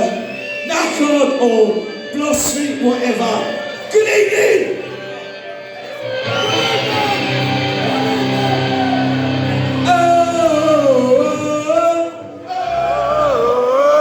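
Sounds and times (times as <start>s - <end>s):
person singing loudly: 6.3s - 14.0s.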